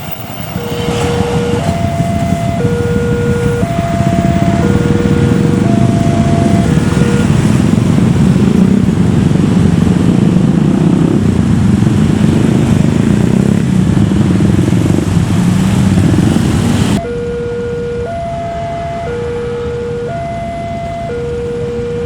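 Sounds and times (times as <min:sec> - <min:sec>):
train passing with low rumble: 0:00.0 - 0:21.7
level crossing alarm two tones: 0:00.3 - 0:07.9, 0:17.0 - 0:22.0.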